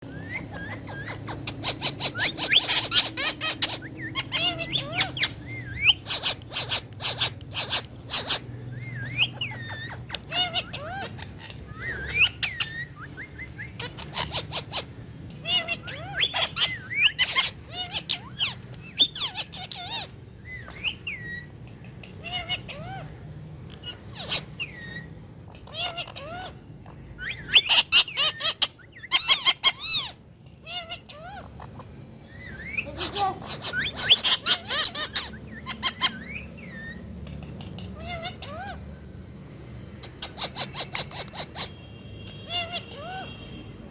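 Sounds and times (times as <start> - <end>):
parrot chirping and whistling: 0.0 - 23.1, 23.7 - 38.9, 40.0 - 41.8
sharp clicks and taps: 21.6 - 22.2.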